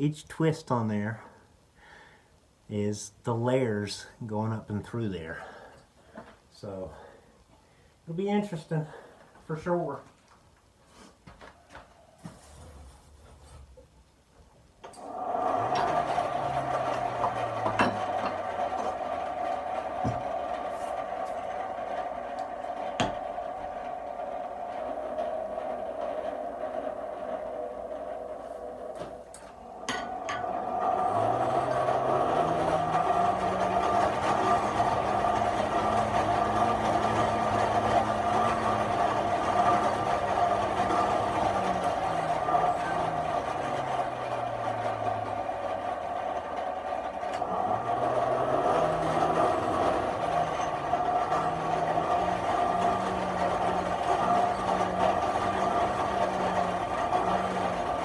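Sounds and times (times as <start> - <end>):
small shop noises: 2.7 - 58.0
forge rushing noise: 14.8 - 58.0
machine humming with whine: 14.8 - 58.0.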